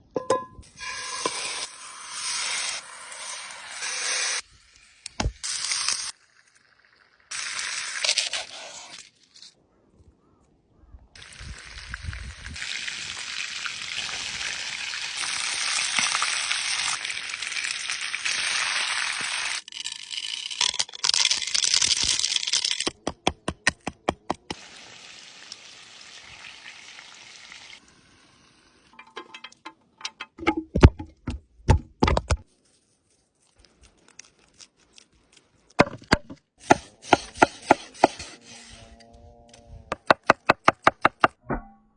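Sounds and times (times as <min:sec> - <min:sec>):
chicken sizzling in hot oil: 0:11.2 - 0:19.7, 0:24.6 - 0:28.9.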